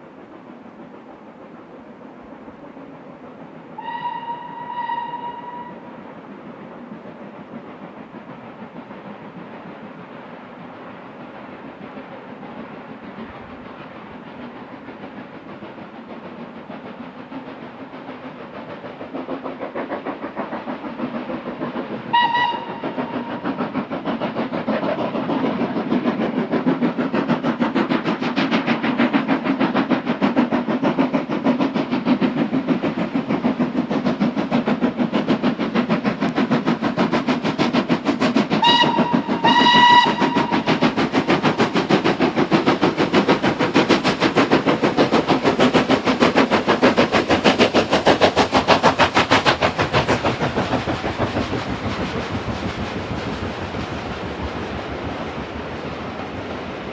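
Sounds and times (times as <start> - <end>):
steam locomotive exhaust beats: 0.0 - 56.9
steam whistle blast: 3.8 - 6.0, 22.1 - 23.4, 38.6 - 40.7.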